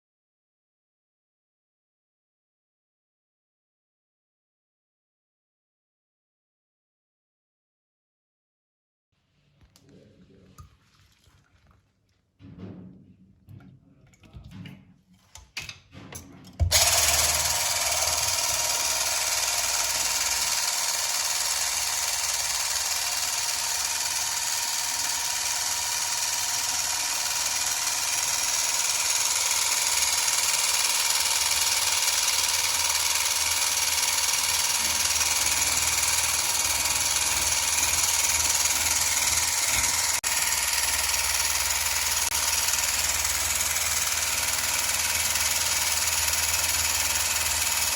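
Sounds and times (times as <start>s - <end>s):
electric mixer motor running: 16.6s - 47.9s.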